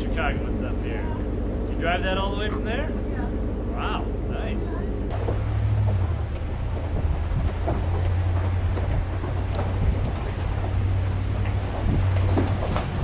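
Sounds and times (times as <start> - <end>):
low engine drone: 0.0 - 13.0
tyres crunching over stones: 5.1 - 13.0.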